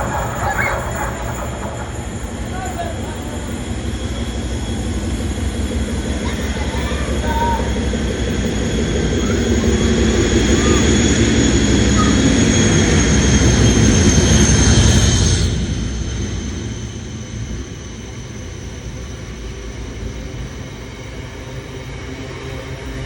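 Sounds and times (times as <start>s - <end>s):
diesel locomotive engine passing: 0.0s - 18.2s.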